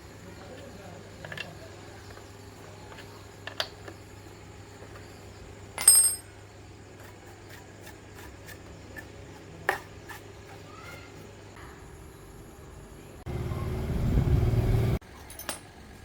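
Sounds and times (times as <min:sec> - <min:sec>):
metal tools clinking: 0:05.8 - 0:06.3, 0:15.1 - 0:15.9.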